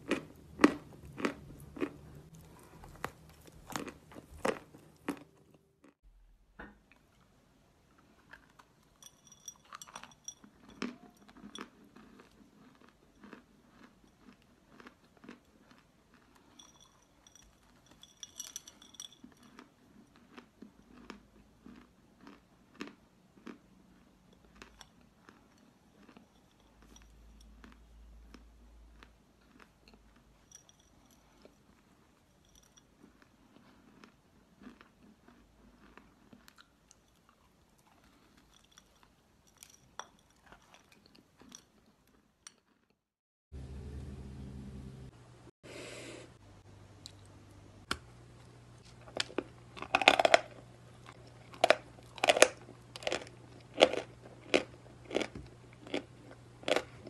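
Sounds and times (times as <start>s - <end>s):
chalk crunching while chewed: 0.0s - 6.0s, 9.6s - 17.4s, 19.3s - 30.6s, 31.2s - 43.0s, 48.8s - 57.0s.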